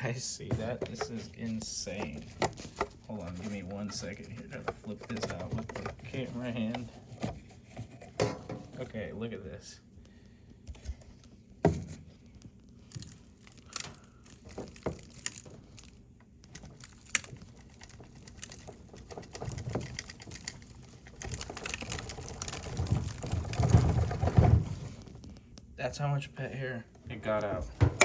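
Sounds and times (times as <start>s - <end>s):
rustling: 0.4s - 8.4s, 12.2s - 25.5s.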